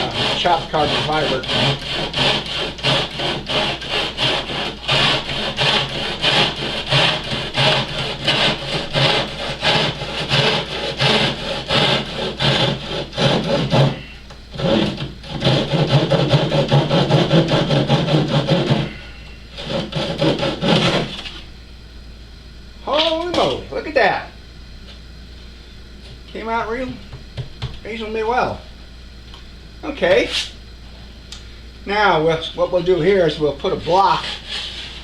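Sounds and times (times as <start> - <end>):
hand saw cutting: 0.0 - 21.4, 33.9 - 35.0.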